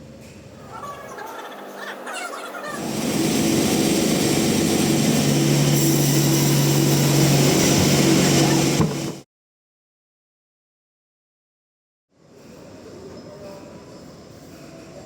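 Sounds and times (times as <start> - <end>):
band saw running: 2.8 - 9.2.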